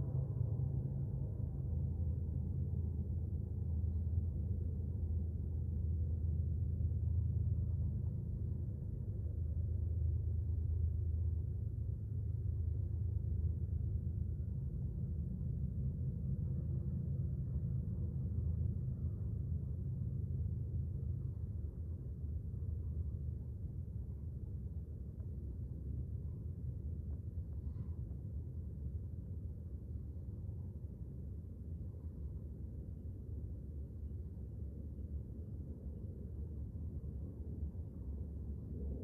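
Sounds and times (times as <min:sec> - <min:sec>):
freight train rumble: 0:00.0 - 0:33.4.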